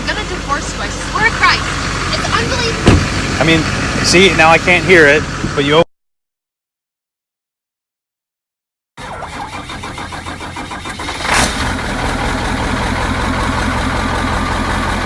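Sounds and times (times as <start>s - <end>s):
truck engine idling: 0.0s - 5.8s, 9.0s - 15.0s
truck engine cranking on starter: 9.0s - 15.0s.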